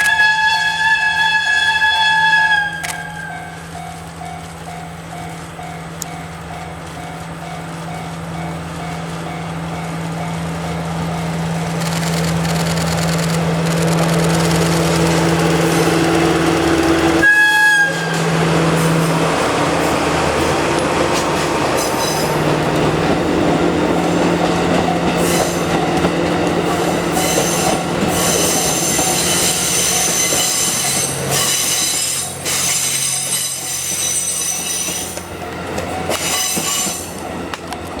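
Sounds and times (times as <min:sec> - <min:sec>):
coaches rumbling on rails: 0:00.0 - 0:38.0
diesel locomotive engine drone: 0:00.0 - 0:38.0
train wheels squealing: 0:21.7 - 0:22.5, 0:24.7 - 0:26.0, 0:26.6 - 0:35.3, 0:35.9 - 0:37.3.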